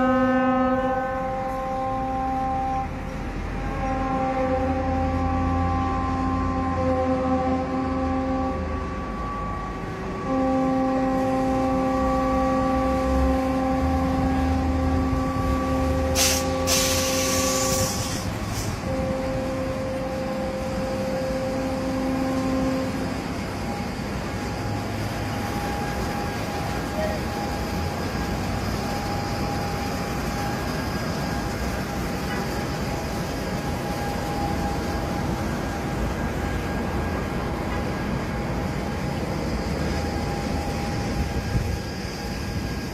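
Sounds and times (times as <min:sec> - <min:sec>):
horn blasts: 0:00.0 - 0:42.4
loud hiss: 0:15.8 - 0:19.8.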